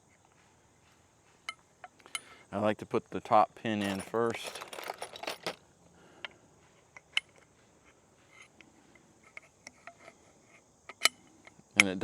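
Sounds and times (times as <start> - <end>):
metal pin clicking and clinking: 3.8 - 5.6.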